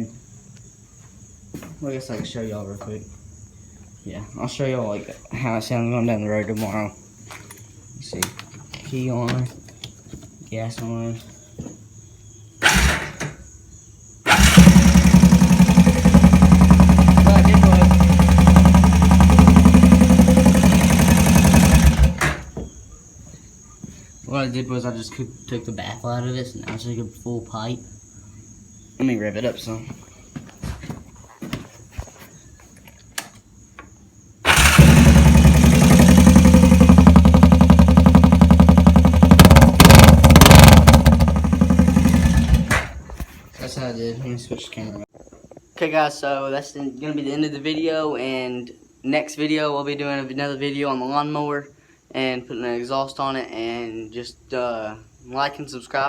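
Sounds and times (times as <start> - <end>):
atv engine idling loudly: 12.6 - 13.3, 14.3 - 22.6, 34.5 - 43.0.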